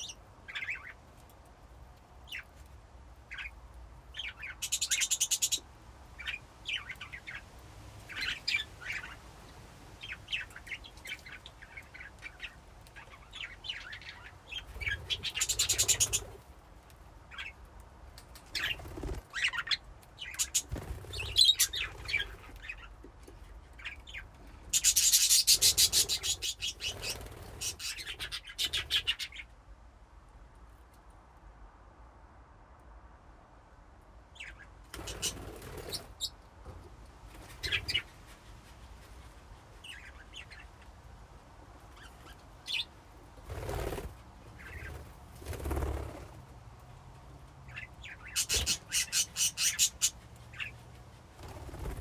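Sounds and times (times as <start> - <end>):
budgies chirping and chattering: 0.0 - 1.0, 4.2 - 5.6, 8.1 - 9.2, 10.0 - 16.4, 18.6 - 22.9, 23.8 - 29.4, 34.4 - 36.3, 37.4 - 38.2, 43.5 - 46.2, 47.7 - 50.8.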